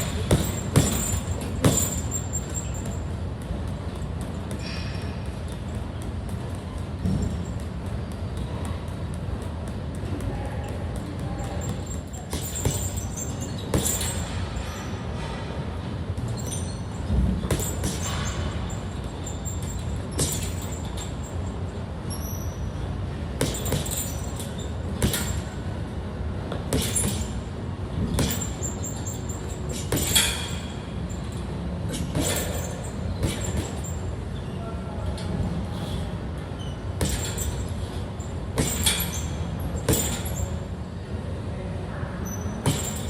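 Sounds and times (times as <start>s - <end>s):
punches thudding: 0.0s - 14.4s, 17.1s - 21.1s, 23.3s - 25.6s, 26.5s - 30.8s, 31.9s - 34.0s, 37.0s - 37.7s, 38.5s - 40.5s, 42.6s - 43.0s
steady low hum: 0.0s - 43.0s.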